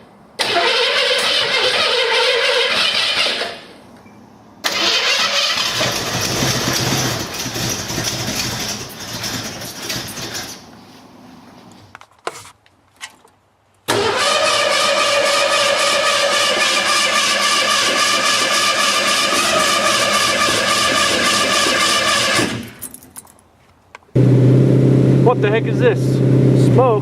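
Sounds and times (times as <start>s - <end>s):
engine starter cranking: 0.4s - 3.7s, 4.6s - 10.6s, 13.9s - 22.9s.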